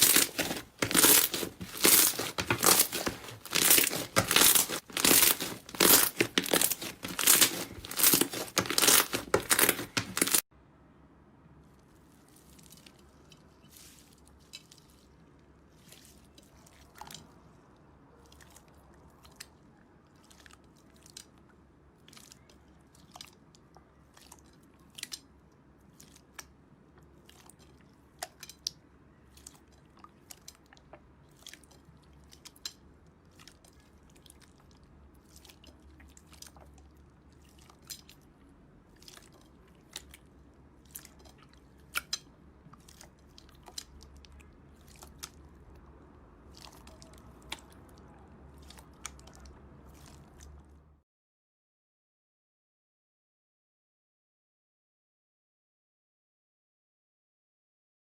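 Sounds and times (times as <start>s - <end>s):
slime crackling and clicking: 0.0s - 10.4s.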